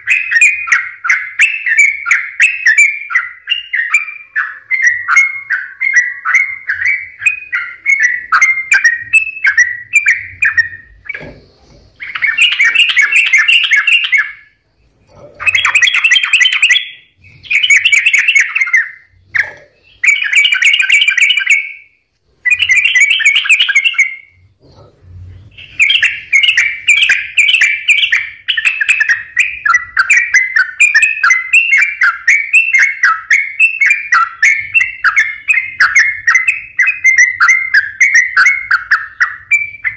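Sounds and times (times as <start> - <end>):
bird singing chirps: 0.0 - 39.9.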